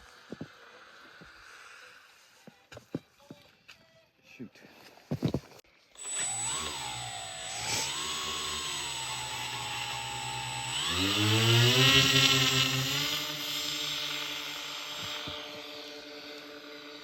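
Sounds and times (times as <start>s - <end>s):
model plane motor and propeller: 6.0s - 17.0s.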